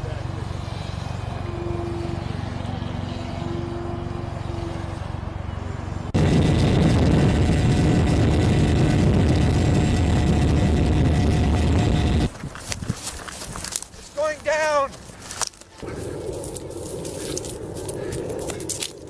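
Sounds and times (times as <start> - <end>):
model airplane motor humming: 6.2 - 12.4.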